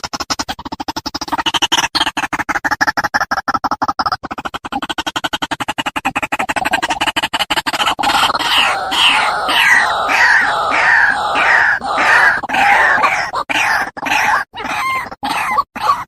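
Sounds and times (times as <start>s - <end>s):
waterhen calling: 8.0s - 16.0s.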